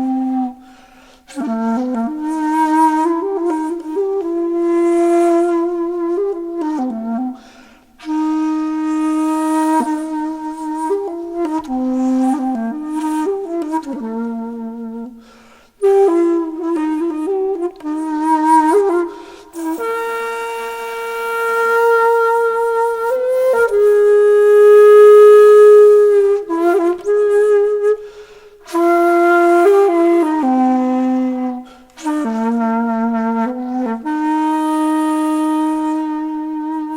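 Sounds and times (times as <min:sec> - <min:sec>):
solo wind instrument melody: 0:00.0 - 0:36.9.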